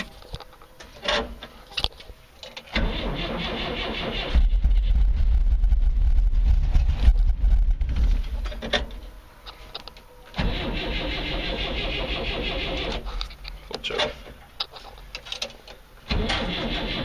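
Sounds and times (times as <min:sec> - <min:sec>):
starter motor cranking: 0:16.1 - 0:17.0.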